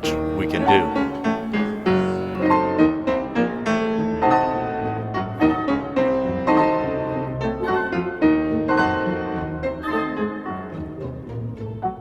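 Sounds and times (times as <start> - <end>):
classical piano music: 0.0 - 12.0.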